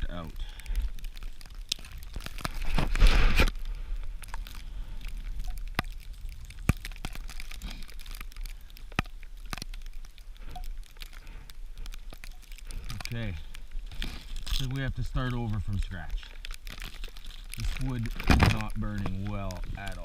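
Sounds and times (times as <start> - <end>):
sharp clicks and snaps: 0.1 - 20.0
rustling noise: 0.9 - 8.6, 9.2 - 20.0.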